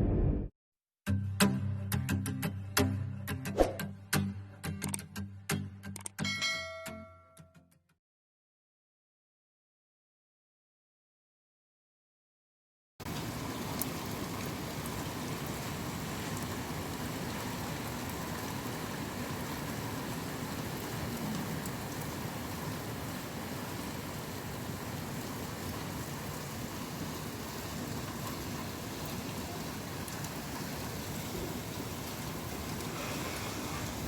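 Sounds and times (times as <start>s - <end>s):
steady heavy rain: 13.0s - 34.0s.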